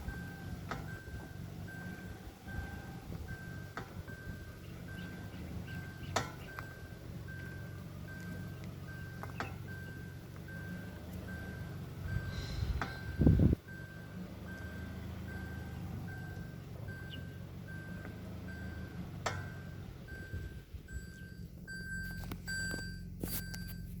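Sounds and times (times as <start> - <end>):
car engine hum: 0.0 - 24.0
reverse warning beeping: 0.0 - 24.0
higher beep tones: 19.5 - 24.0.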